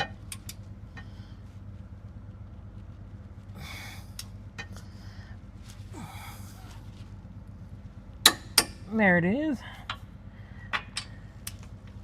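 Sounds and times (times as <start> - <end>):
steady low hum: 0.0 - 12.0
man breathing out hard: 3.6 - 4.2, 4.8 - 6.8.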